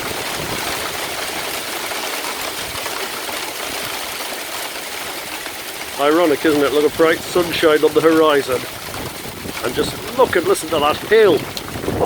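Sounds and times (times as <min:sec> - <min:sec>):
hailstones rattling: 0:00.0 - 0:12.0.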